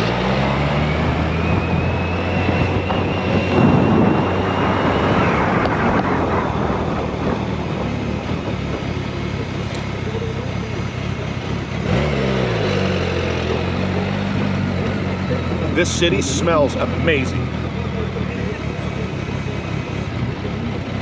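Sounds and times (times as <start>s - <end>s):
motorcycle engine running: 0.0s - 21.0s
wind buffeting microphone: 1.6s - 9.5s.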